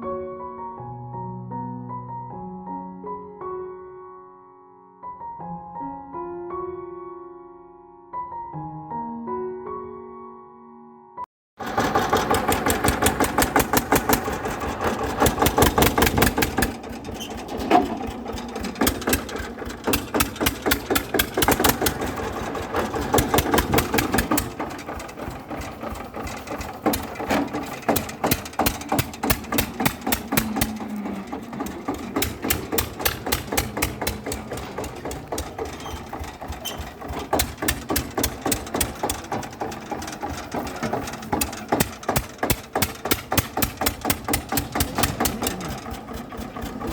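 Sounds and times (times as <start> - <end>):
small motor knocking rapidly: 11.6 - 46.9.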